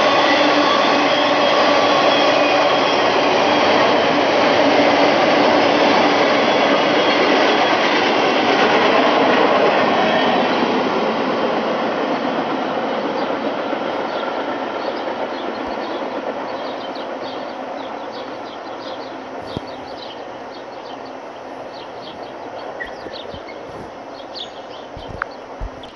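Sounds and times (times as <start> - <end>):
freight train rolling by: 0.0 - 25.9
birds chirping: 12.0 - 25.9.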